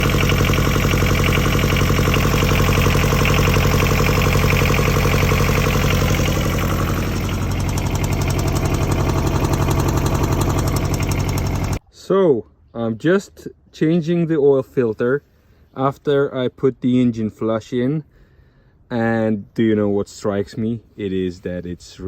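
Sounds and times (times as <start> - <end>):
diesel engine running steadily: 0.0 - 11.8.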